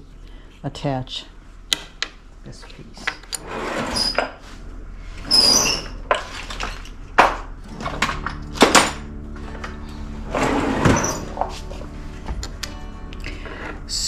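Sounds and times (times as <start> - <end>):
short squeak: 5.3 - 6.0, 10.6 - 11.4.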